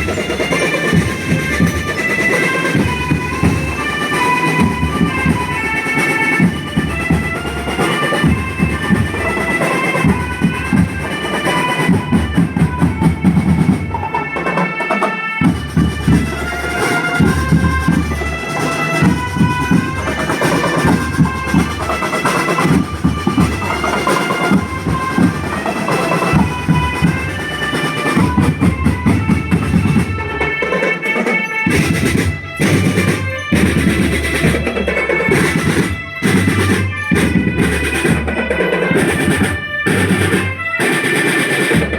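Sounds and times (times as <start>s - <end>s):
marching drums beating: 0.0s - 41.9s
bright melody: 15.6s - 41.8s.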